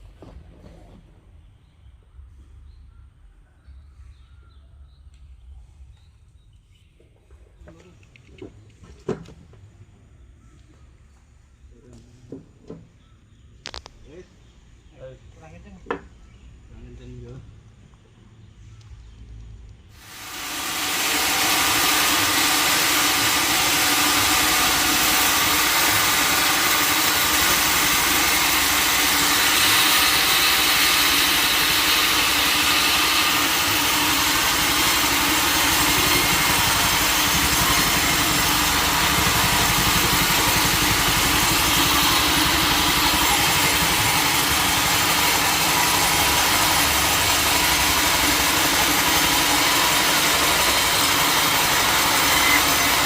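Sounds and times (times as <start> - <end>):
sawmill machinery running: 20.0 - 53.0.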